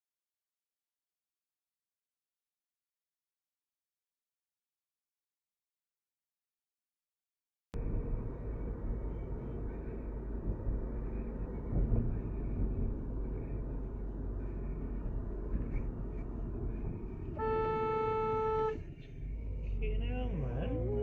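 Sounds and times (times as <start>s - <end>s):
car driving road noise: 7.8s - 21.0s
car horn: 17.3s - 18.9s.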